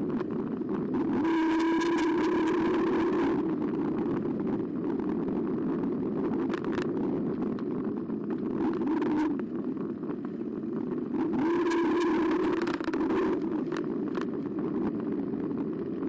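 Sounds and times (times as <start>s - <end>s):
tyre and wind noise: 0.0s - 16.0s
sharp clicks and rattles: 6.1s - 9.4s, 10.1s - 16.0s.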